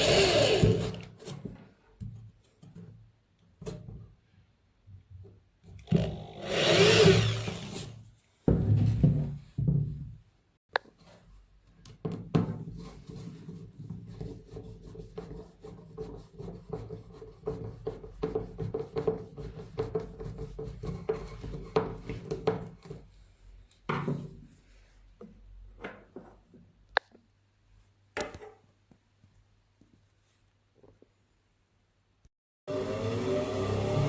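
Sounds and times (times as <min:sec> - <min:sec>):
disc sander grinding wood: 0:06.5 - 0:07.8, 0:32.7 - 0:34.0.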